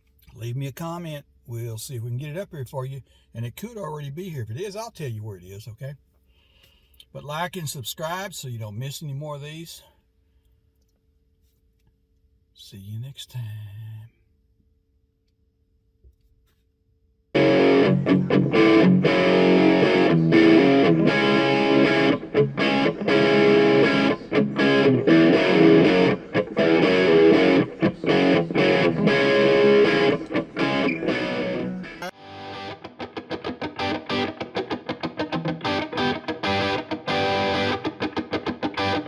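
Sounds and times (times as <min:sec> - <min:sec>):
distorted electric guitar rock: 0:17.4 - 0:39.0.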